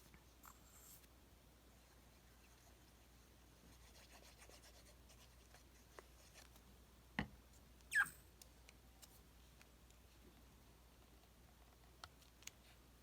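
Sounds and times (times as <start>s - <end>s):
high squeak falling in pitch: 7.9s - 8.2s.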